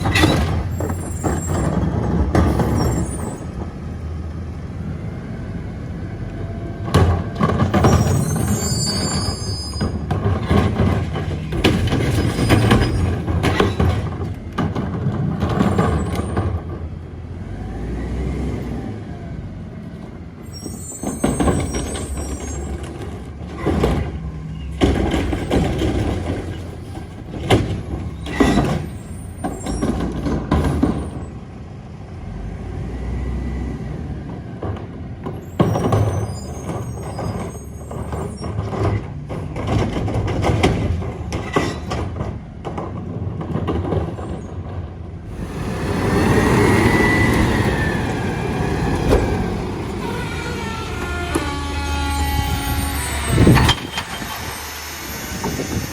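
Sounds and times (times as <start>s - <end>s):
high brake squeals: 0.0s - 1.8s, 2.5s - 3.6s, 7.8s - 10.1s, 12.0s - 13.8s, 20.4s - 23.8s, 28.1s - 30.0s, 35.4s - 38.8s, 45.3s - 55.9s
diesel engine rumbling: 0.0s - 55.9s
air-brake hisses: 52.2s - 55.9s.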